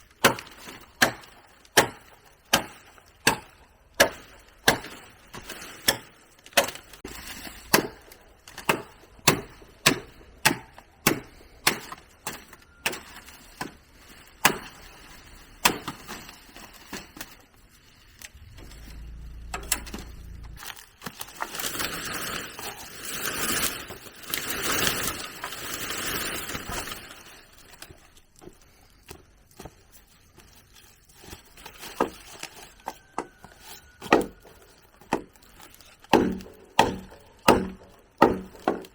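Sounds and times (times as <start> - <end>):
blade chopping bamboo: 0.2 - 13.8, 14.4 - 14.8, 34.0 - 34.4, 36.0 - 38.9
rough rasping noise: 18.3 - 20.8.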